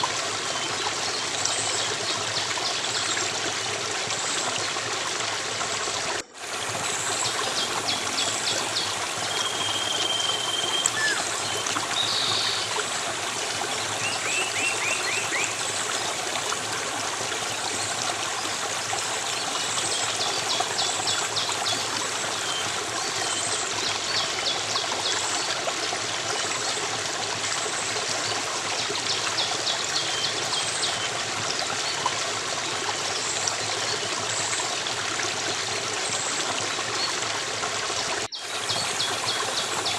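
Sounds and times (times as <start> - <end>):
running stream water: 0.0 - 39.9
small birds chirping: 7.1 - 12.7
bird whistled note: 9.4 - 11.2.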